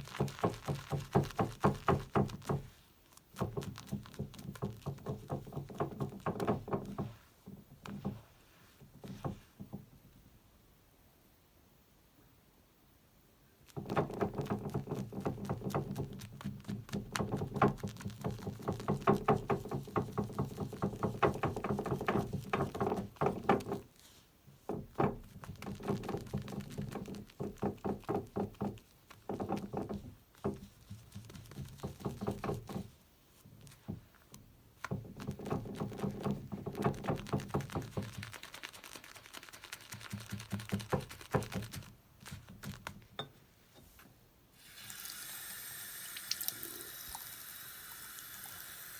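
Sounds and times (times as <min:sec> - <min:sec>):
shaving brush swishing lather: 0:37.0 - 0:42.8.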